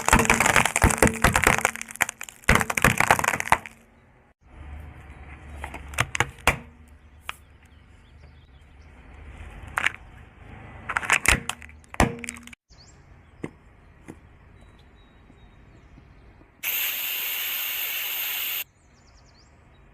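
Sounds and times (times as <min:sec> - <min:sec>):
crunchy objects cracking: 0:00.0 - 0:03.8, 0:10.9 - 0:12.6.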